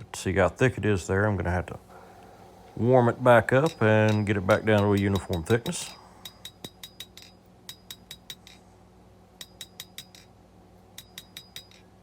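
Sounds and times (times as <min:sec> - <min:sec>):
hammer striking steel on anvil: 0:03.6 - 0:08.6.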